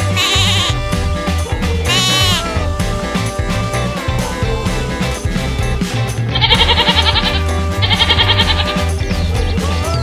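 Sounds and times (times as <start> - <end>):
sheep bleat: 0.0 - 1.1, 1.8 - 2.7, 6.3 - 9.0
background music with a beat: 0.0 - 10.0.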